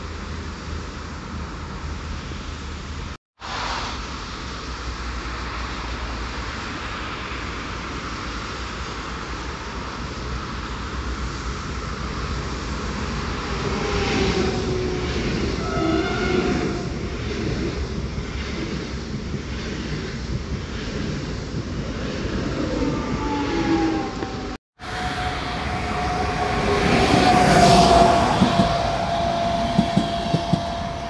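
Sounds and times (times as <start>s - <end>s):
road traffic hum: 0.0s - 15.7s, 24.0s - 31.0s
electric train passing: 0.2s - 31.0s
steady whining tones: 22.9s - 31.0s.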